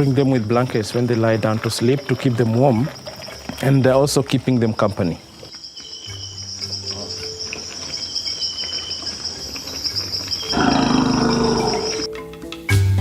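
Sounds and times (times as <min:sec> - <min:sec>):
crickets chirring: 0:00.0 - 0:12.2
marimba music: 0:11.3 - 0:13.0.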